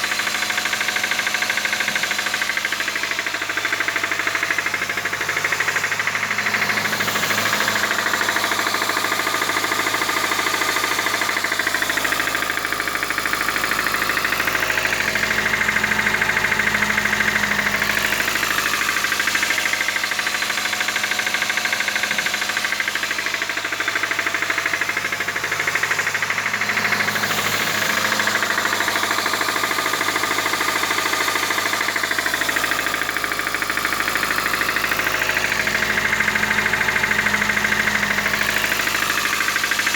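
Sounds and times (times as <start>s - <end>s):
petrol engine knocking: 0.0s - 39.9s.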